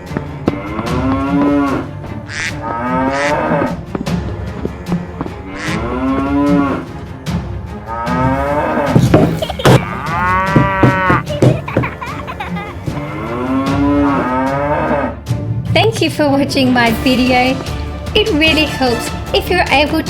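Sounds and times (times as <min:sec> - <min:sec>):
cows mooing: 0:00.0 - 0:07.2, 0:07.8 - 0:11.4, 0:12.1 - 0:15.2.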